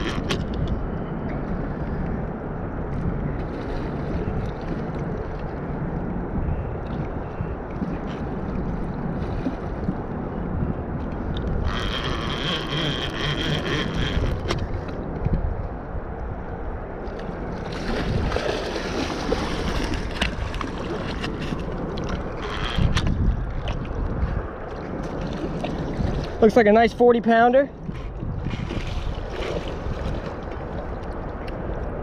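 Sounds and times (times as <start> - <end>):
moving water: 0.0 - 32.0
wind rumbling on microphone: 0.0 - 32.0
fish splashing in water: 17.6 - 22.6.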